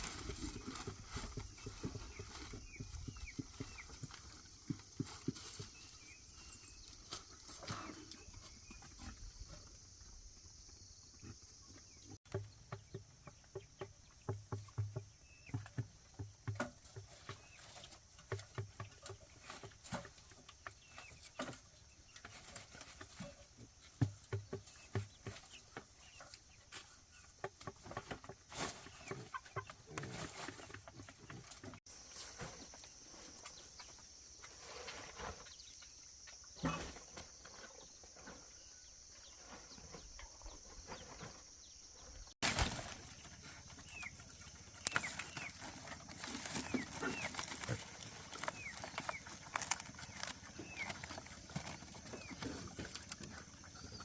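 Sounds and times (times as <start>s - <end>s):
chickens clucking: 11.1s - 31.8s, 42.8s - 54.0s.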